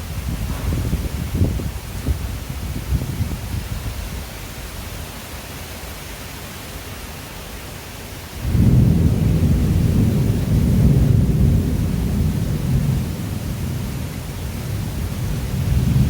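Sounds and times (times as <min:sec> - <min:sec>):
thunder rumbling: 0:00.0 - 0:03.8, 0:08.4 - 0:16.0
heavy rain hissing: 0:00.0 - 0:16.0.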